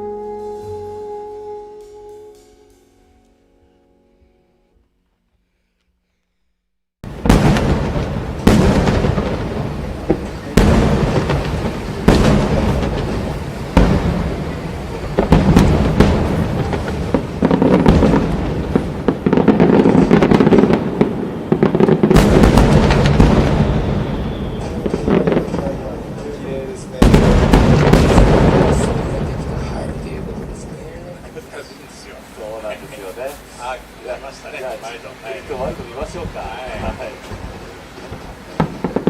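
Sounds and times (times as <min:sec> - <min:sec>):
firework shells booming: 0:07.0 - 0:31.8, 0:35.4 - 0:39.0
dense firework crackling: 0:07.0 - 0:39.0.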